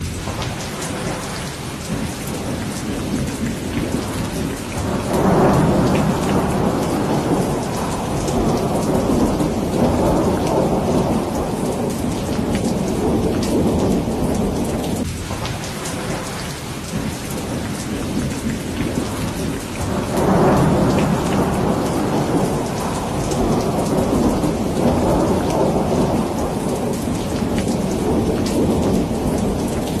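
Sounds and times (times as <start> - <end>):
heavy rain hissing: 0.0 - 30.0
thunder rumbling: 0.0 - 30.0.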